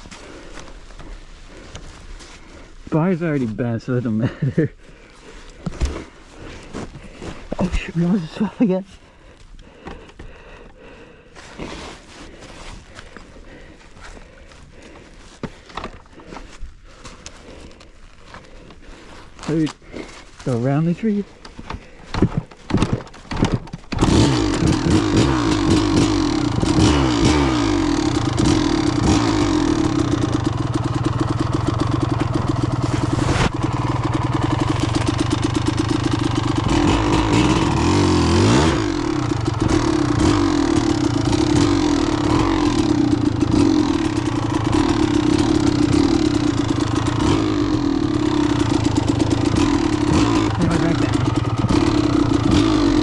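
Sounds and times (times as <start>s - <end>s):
motorbike engine revving: 22.7s - 53.0s.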